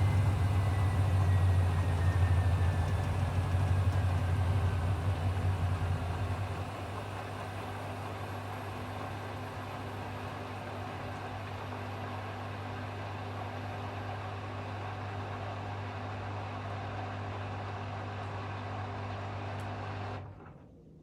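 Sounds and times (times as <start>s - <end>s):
washing machine spinning: 0.0s - 11.7s.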